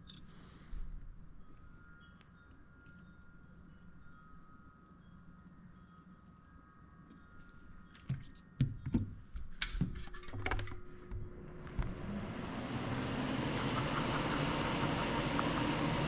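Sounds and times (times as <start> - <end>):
steady rushing noise: 11.2 - 16.0.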